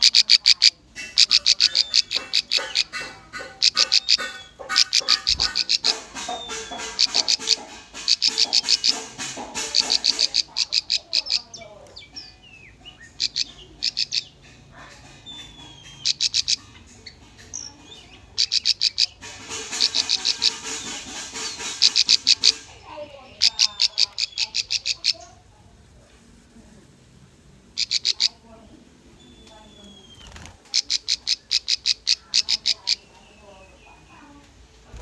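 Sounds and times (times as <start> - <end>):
soft bird chirps: 0.0 - 9.0, 9.7 - 25.4
bird song with sharp high notes: 0.9 - 24.6.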